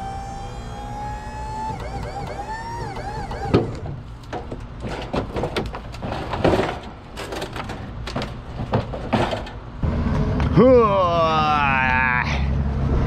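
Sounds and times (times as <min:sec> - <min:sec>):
wavering pitched tone: 0:00.0 - 0:03.9
heavy junk knocking and clanking: 0:02.1 - 0:09.8.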